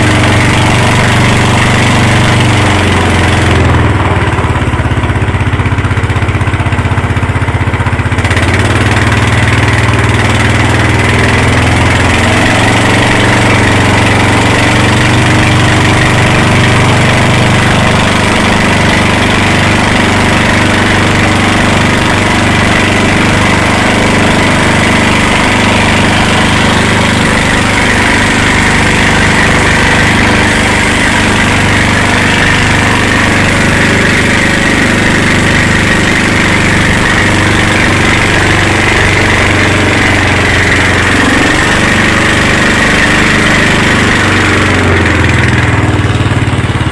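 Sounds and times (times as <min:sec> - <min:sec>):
motorboat engine running: 0:00.0 - 0:46.9.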